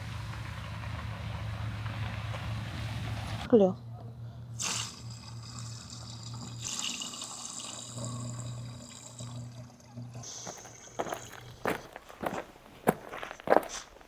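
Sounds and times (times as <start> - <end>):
low hum: 0.0 - 13.4
liquid pouring and trickling: 4.7 - 11.9.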